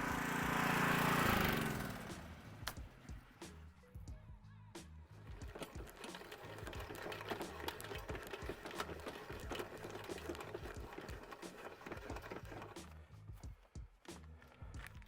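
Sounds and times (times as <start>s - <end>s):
background music with bass line: 2.0s - 15.0s
clay bar rubbing car paint: 5.4s - 13.0s.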